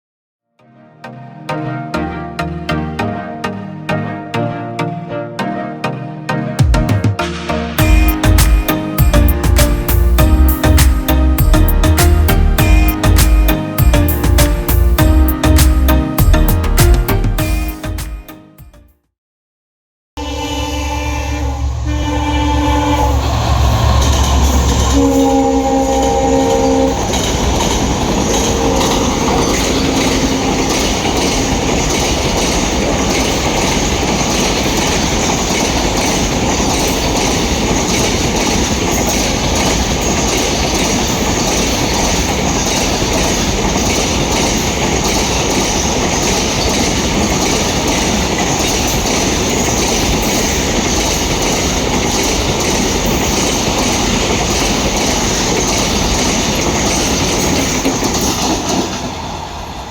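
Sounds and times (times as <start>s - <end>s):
train wheels clacking on rails: 7.8s - 17.1s, 23.0s - 59.9s
locomotive horn blasts: 20.2s - 31.0s.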